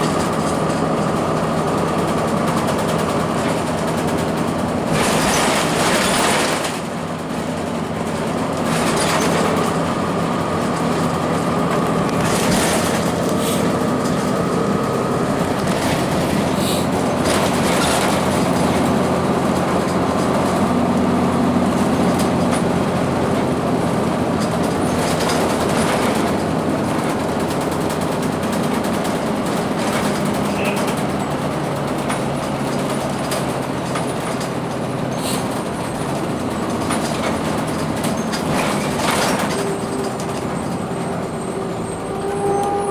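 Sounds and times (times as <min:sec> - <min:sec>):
bus diesel engine running: 0:00.0 - 0:42.9
road and rattle noise: 0:00.0 - 0:42.9.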